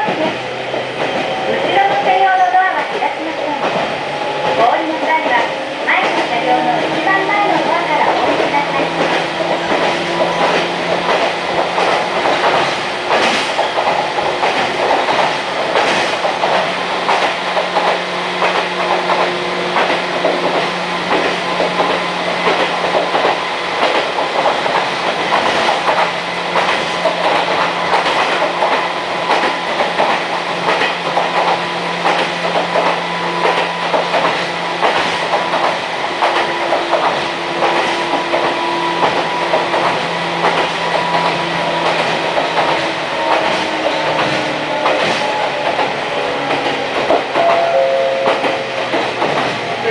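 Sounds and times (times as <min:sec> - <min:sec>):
electric train hum: 0:00.0 - 0:49.9
wheels clicking over rail joints: 0:04.4 - 0:47.7.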